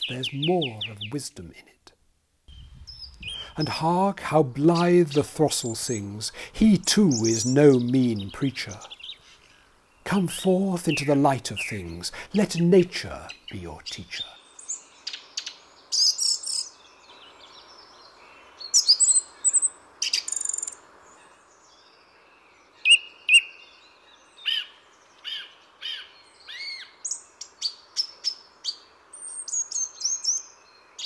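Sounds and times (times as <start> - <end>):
faint background hiss: 0.0 - 31.0.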